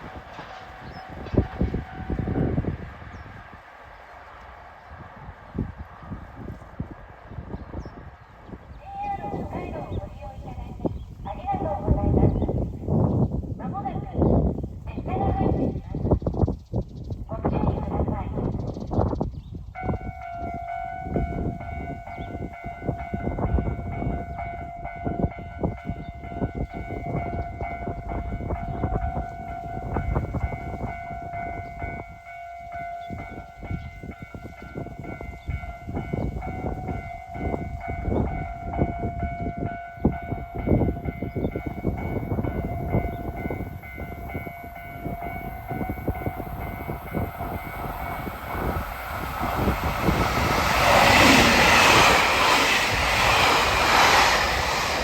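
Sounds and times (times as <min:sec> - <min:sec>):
train rushing noise: 0:00.0 - 0:13.6, 0:19.8 - 0:55.0
steady ringing tone: 0:28.4 - 0:51.8.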